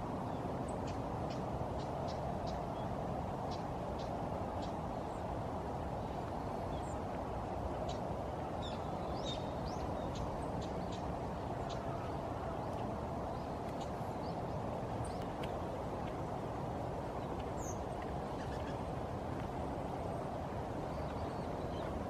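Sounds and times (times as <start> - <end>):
bird calls and chirps: 17.6 - 18.8.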